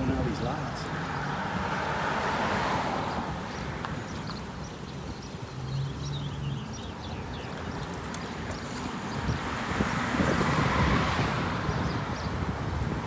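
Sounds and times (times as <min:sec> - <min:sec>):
traffic noise: 0:00.0 - 0:13.0
wind on microphone: 0:08.9 - 0:13.0.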